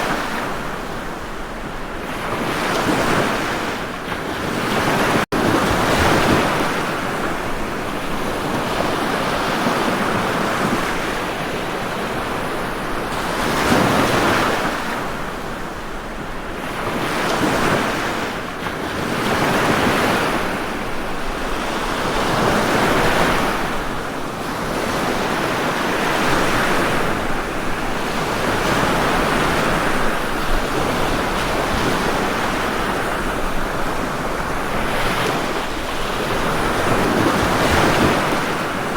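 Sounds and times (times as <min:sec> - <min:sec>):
ocean waves breaking on shore: 0:00.0 - 0:38.9.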